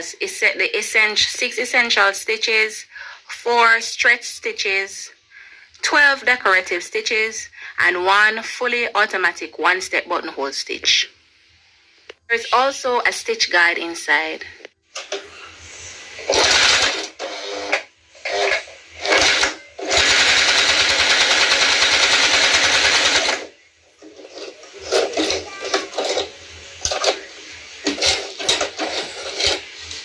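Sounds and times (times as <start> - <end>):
sewing machine running: 16.3 - 23.5, 27.8 - 29.7.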